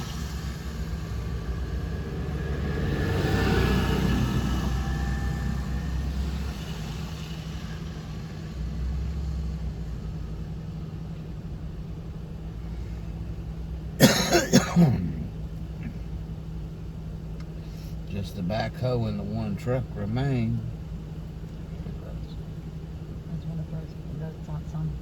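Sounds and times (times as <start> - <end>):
vehicle passing by: 0.0 - 9.6
low engine hum: 0.0 - 25.0
person coughing: 14.0 - 16.0.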